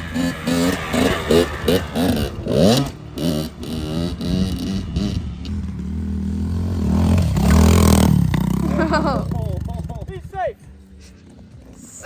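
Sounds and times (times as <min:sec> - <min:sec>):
dirt bike engine revving: 0:00.0 - 0:10.3.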